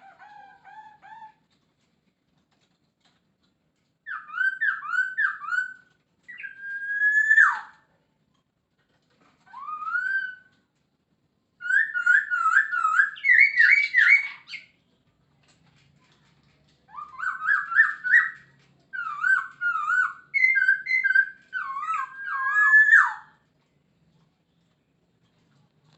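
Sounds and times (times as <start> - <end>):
bird singing whistled phrases: 4.1 - 7.7, 9.5 - 10.5, 11.6 - 14.7, 16.9 - 23.4.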